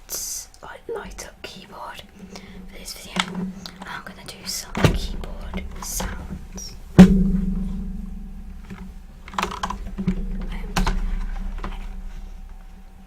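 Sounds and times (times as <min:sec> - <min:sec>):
keyboard keys clicking: 0:08.7 - 0:12.0.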